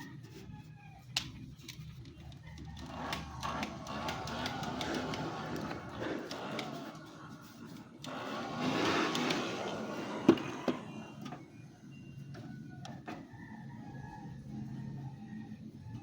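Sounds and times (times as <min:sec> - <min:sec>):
rushing scraping handling noise: 0:02.6 - 0:11.1.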